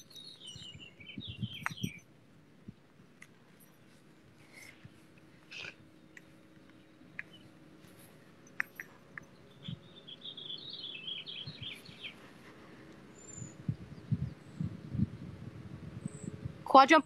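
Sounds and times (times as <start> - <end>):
songbird warbling chirps: 0.0 - 2.1, 5.5 - 12.4, 13.0 - 14.7.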